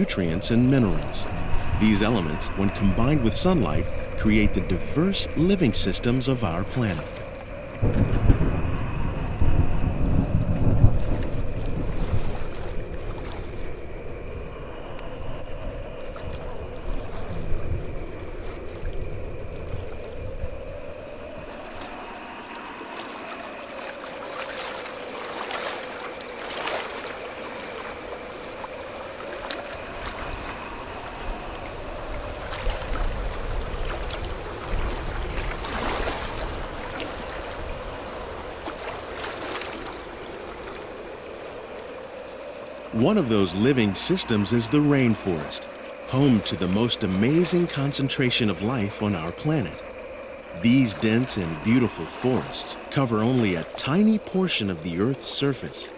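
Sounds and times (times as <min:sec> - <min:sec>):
low rumble: 0:00.0 - 0:23.9
flowing water: 0:00.0 - 0:55.9
drone tones bending in pitch: 0:42.9 - 0:54.9.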